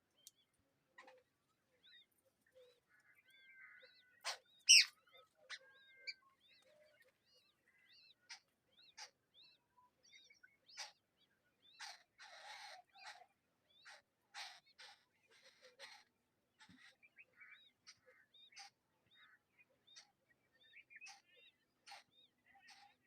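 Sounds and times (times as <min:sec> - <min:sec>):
bird chirps: 0:02.6 - 0:11.0.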